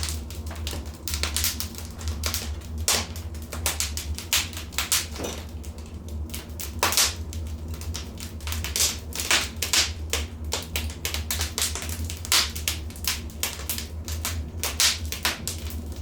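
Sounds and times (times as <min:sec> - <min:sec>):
low rumble of fire: 0:00.0 - 0:16.0
wood fire crackling and popping: 0:00.0 - 0:16.0.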